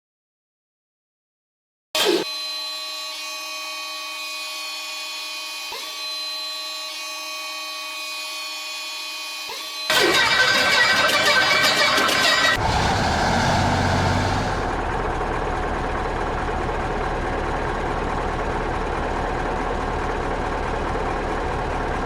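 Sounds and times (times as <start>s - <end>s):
electric starter motor whine: 2.0s - 22.0s
ship engine running roughly: 9.9s - 22.0s.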